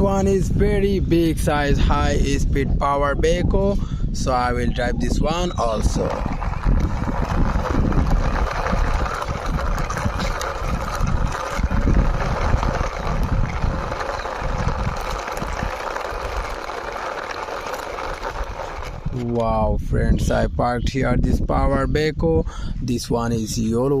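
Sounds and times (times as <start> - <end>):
toy vehicle rolling and scraping: 5.1 - 19.5
low rumble: 5.8 - 21.0.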